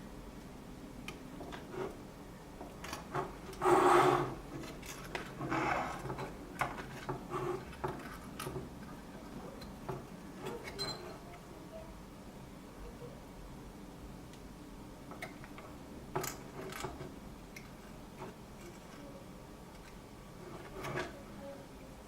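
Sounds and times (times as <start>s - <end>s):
hand tools scraping solder: 3.0s - 8.3s.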